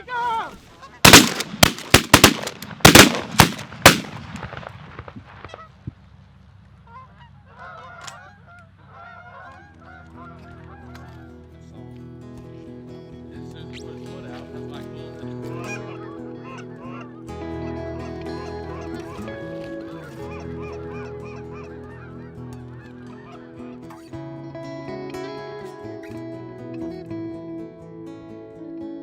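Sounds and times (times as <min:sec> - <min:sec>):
shotgun blasts: 0:01.1 - 0:05.6
geese honking: 0:06.9 - 0:11.3, 0:15.5 - 0:24.0
background music: 0:11.2 - 0:29.0.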